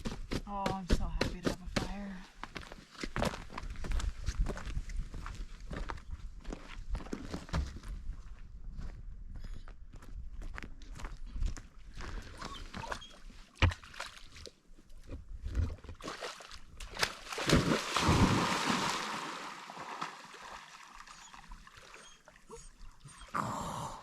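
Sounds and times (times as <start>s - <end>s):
water splashing: 16.0s - 22.7s.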